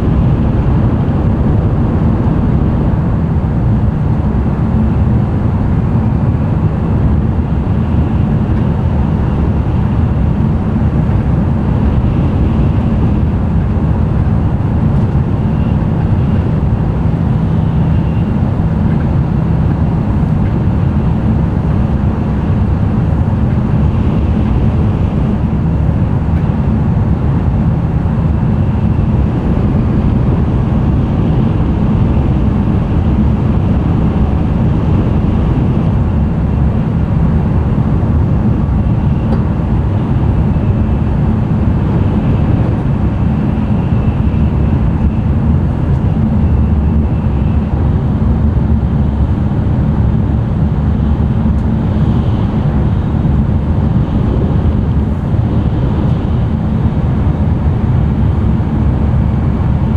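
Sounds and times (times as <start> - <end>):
air noise: 0.0 - 59.9
wheels rumbling on rail: 0.0 - 59.9.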